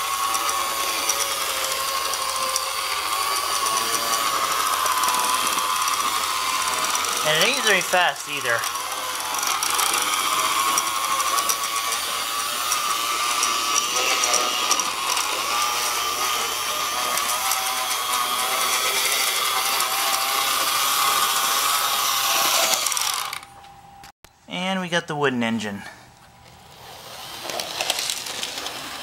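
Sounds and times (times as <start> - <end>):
rapid clicking and rattling: 0.0 - 21.8
model train motor whine: 0.0 - 23.5, 26.6 - 29.0.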